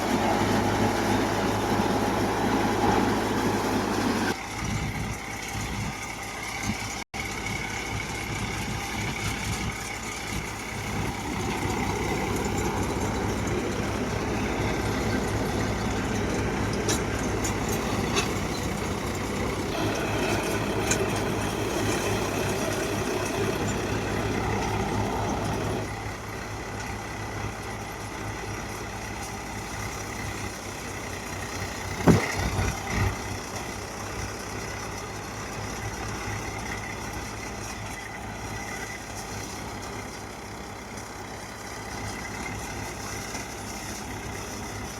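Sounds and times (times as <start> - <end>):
diesel tractor engine running: 0.0 - 44.9.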